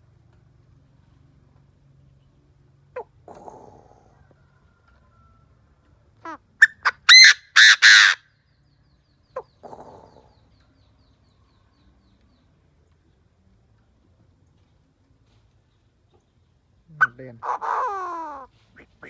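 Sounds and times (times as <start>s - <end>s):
francolin calling: 6.6s - 8.2s.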